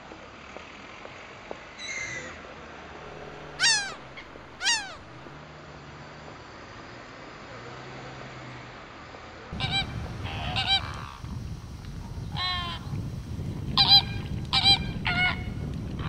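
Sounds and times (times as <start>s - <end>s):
low background rush: 2.6s - 5.4s, 9.5s - 16.0s
water bird honking: 3.1s - 5.3s, 9.6s - 16.0s.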